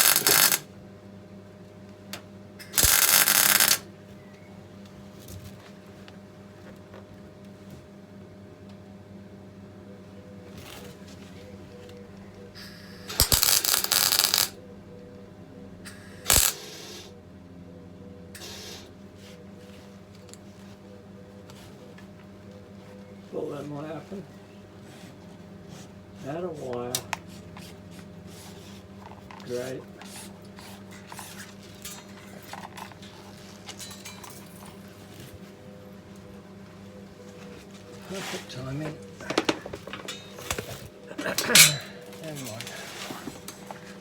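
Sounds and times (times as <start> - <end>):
welding arc crackling: 0.0 - 0.6, 2.6 - 3.8, 13.1 - 14.6, 16.3 - 16.6
steady low hum: 0.0 - 44.0
metallic clinks and rustles: 30.8 - 35.3.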